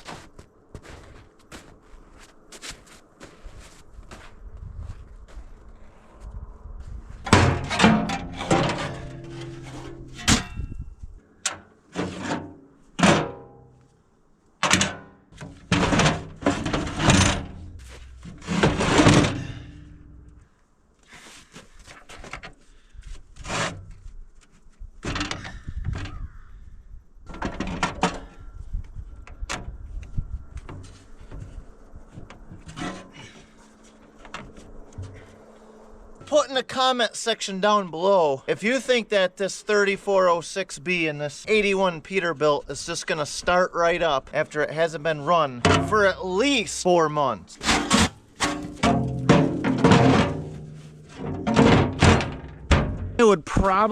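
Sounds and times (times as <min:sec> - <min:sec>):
heavy batteries thunking and knocking: 0:14.6 - 0:20.2, 0:47.6 - 0:53.2.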